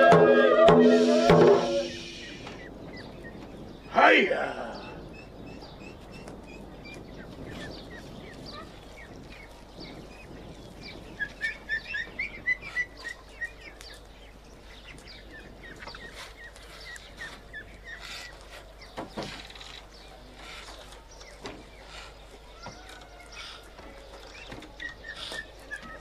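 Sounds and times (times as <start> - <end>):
bird chirps: 0.0 - 9.2.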